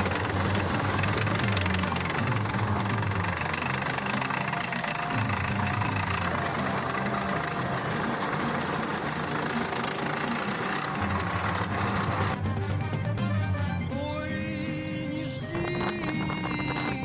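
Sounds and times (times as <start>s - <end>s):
engine running with hiss: 0.0s - 12.4s.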